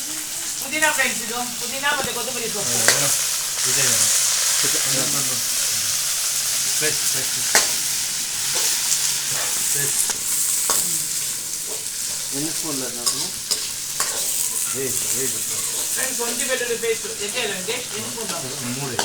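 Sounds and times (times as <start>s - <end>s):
leaves sizzling in hot oil: 0.0s - 19.0s
spoon clicking against pan: 7.5s - 7.8s, 13.0s - 14.7s.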